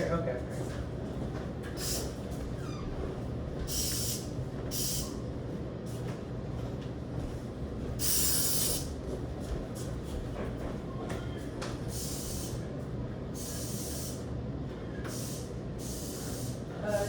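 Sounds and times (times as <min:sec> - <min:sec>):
hissing spray bursts: 0:08.0 - 0:08.8, 0:15.1 - 0:16.6.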